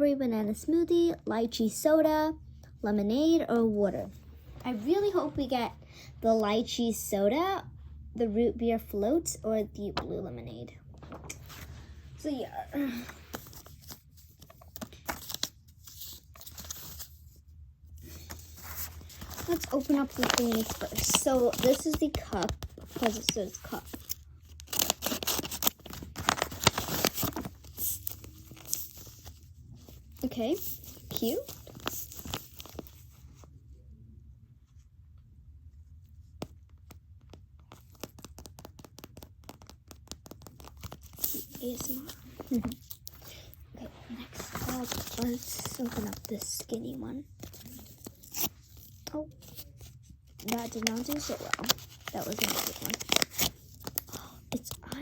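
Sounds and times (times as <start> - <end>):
low steady hum: 0.0 - 38.1
plastic crackles: 12.7 - 17.4, 18.0 - 33.4, 36.4 - 55.0
plastic packaging crinkling: 12.8 - 17.4, 18.0 - 33.2, 37.3 - 55.0.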